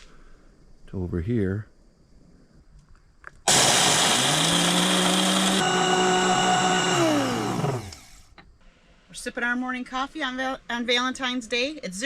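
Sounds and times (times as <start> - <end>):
electric coffee grinder motor: 3.5 - 8.2.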